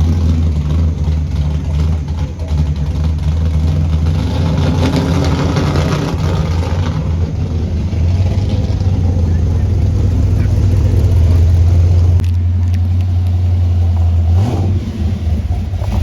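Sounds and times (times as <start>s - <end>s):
car engines idling loudly: 0.0s - 16.0s.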